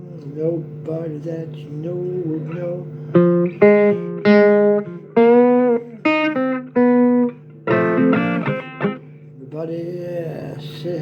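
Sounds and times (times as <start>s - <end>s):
plucked guitar notes: 3.1s - 9.2s.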